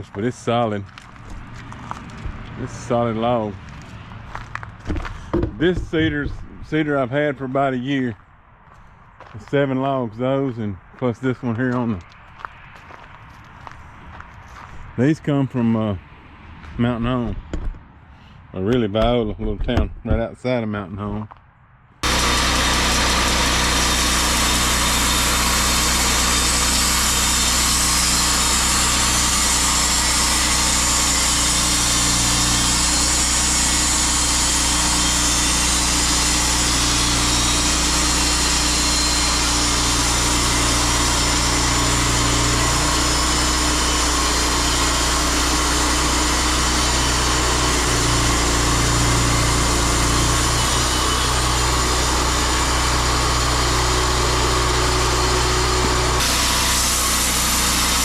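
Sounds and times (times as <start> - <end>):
small gas engine running: 22.0 - 58.0.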